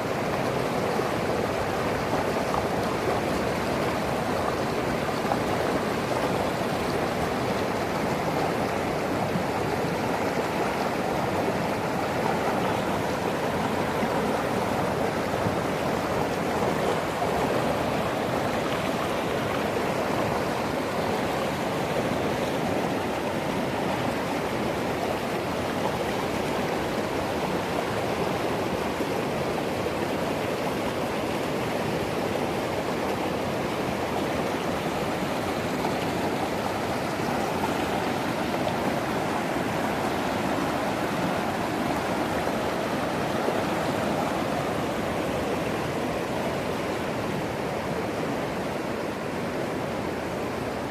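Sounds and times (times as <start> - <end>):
river rushing over rocks: 0.0 - 50.9.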